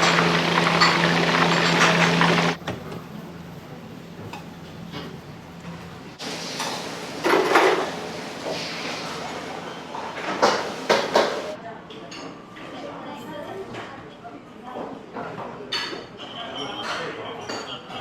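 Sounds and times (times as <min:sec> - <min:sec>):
dishes and utensils clattering: 0:00.0 - 0:02.6, 0:06.5 - 0:08.7, 0:09.9 - 0:11.6
mechanical noise with low hum: 0:00.0 - 0:11.6.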